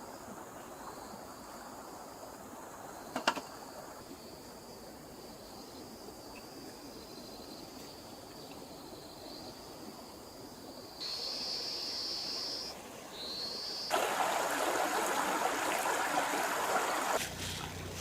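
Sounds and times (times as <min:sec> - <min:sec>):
stream water rushing: 0:11.0 - 0:18.0.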